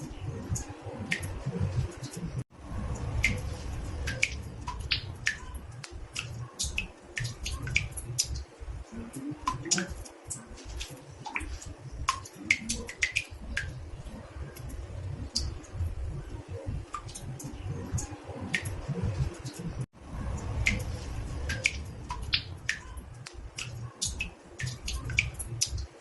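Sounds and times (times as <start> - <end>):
water drops plinking into bathtub: 2.9 - 13.8, 20.2 - 26.0.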